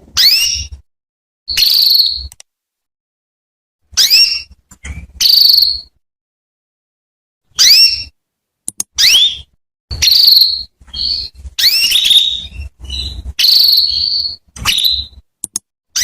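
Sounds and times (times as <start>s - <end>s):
canary chirps and trills: 0.0s - 0.9s, 1.5s - 2.5s, 3.8s - 6.0s, 7.5s - 16.0s.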